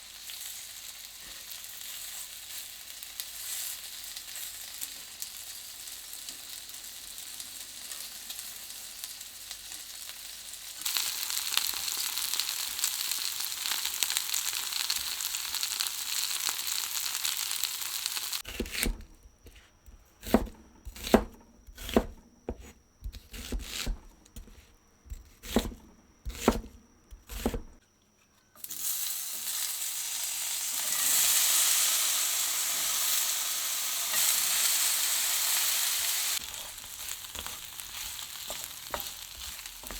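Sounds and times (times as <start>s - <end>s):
food sizzling in a frying pan: 0.0s - 18.4s, 28.6s - 39.9s.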